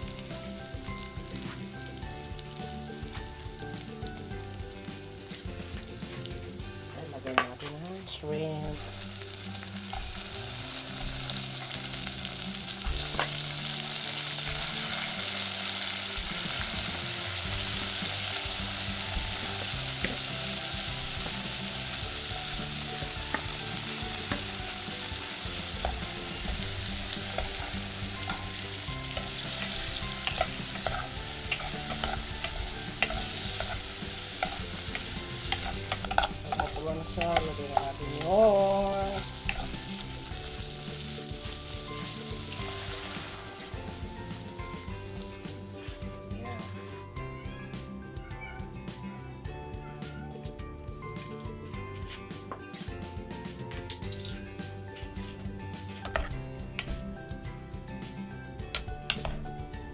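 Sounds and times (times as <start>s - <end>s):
onions sizzling in hot oil: 0.0s - 45.9s
stirring clinks: 53.6s - 54.5s.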